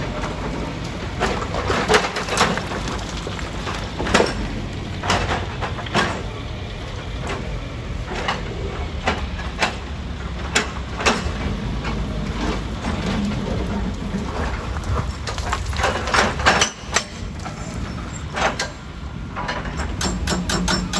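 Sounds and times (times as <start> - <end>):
rock crusher rumbling: 0.0 - 20.9
stone cracking and clanking: 0.1 - 6.3, 11.2 - 18.8.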